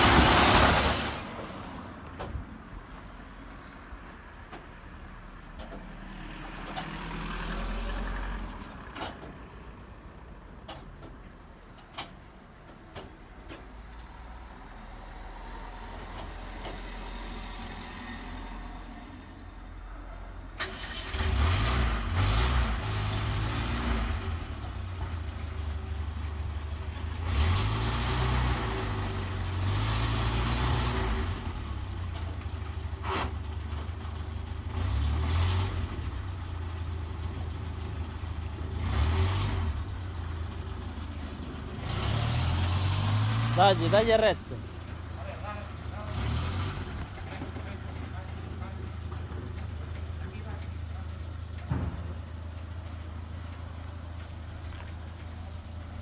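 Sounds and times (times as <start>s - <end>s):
vehicle engine revving: 0.0s - 1.6s, 20.6s - 32.2s, 34.6s - 49.6s.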